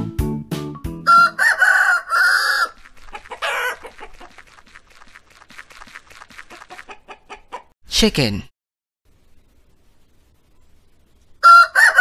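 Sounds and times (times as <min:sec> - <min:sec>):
rooster crowing: 0:01.1 - 0:02.8, 0:03.4 - 0:04.0, 0:11.4 - 0:12.0
chicken squawk: 0:01.1 - 0:04.4, 0:06.5 - 0:07.7, 0:11.4 - 0:12.0
chicken clucking softly: 0:06.5 - 0:07.7.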